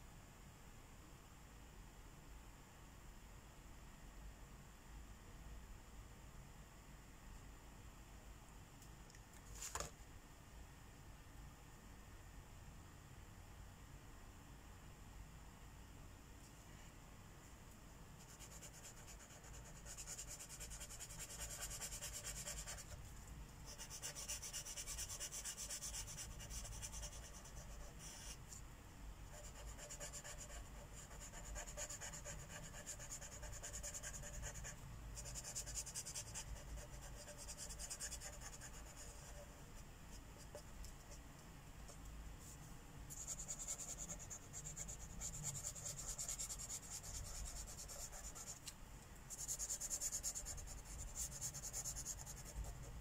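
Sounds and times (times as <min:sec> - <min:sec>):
marker scratching on paper: 0:18.2 - 0:23.0, 0:23.7 - 0:28.4, 0:29.3 - 0:39.8, 0:42.4 - 0:48.6, 0:49.3 - 0:52.9.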